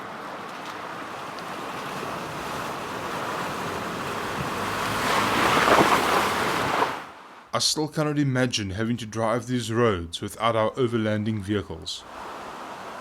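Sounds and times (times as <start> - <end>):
vehicle splashing through water: 0.0 - 7.1.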